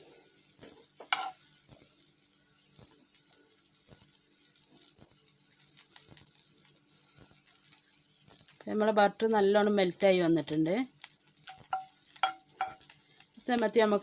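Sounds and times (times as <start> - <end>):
small crackles: 0.0 - 9.8, 10.5 - 14.0
butter sizzling in a pan: 0.0 - 14.0.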